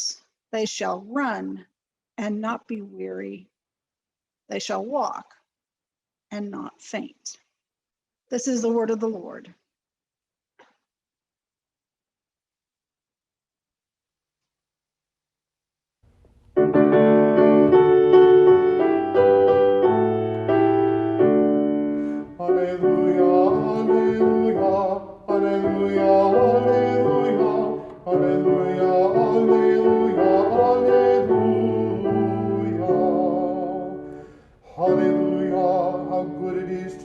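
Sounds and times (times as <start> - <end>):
keyboard playing slow held chords: 16.6 - 37.0
psalm singing: 21.3 - 37.0.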